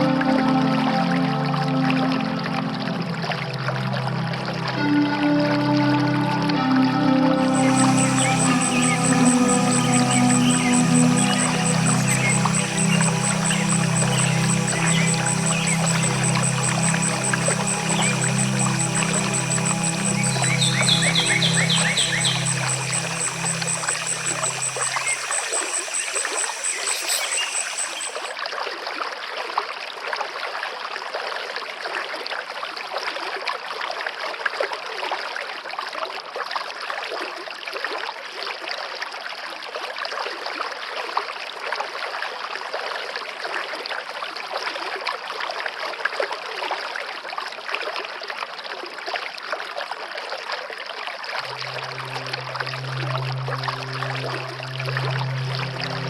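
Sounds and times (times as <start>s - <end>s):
soft low music: 0.0s - 28.2s, 51.4s - 56.0s.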